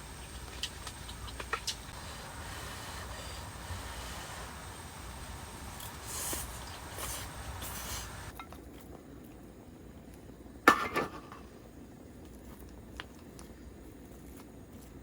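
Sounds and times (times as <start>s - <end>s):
steady hiss: 0.0s - 8.3s.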